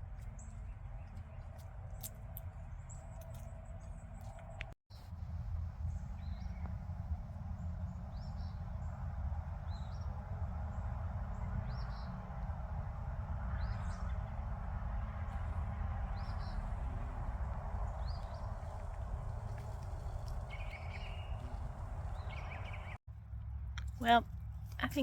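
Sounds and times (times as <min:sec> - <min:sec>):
low outdoor rumble: 0:00.0 - 0:25.0
small bird chirping: 0:15.3 - 0:23.0.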